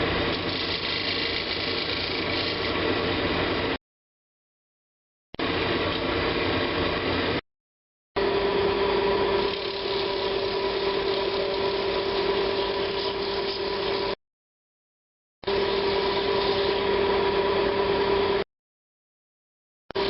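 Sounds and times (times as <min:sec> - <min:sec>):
woodturning lathe humming: 0:00.2 - 0:02.9, 0:08.2 - 0:14.2, 0:15.5 - 0:18.4.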